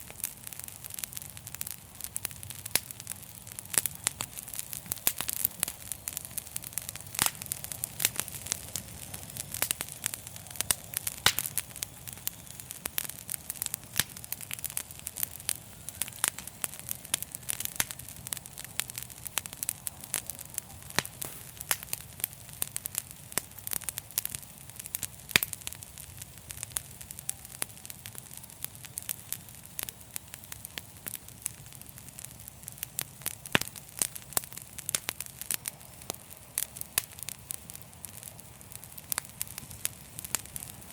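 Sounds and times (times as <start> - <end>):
steady hiss: 0.0 - 40.9
wood fire crackling: 0.0 - 40.9.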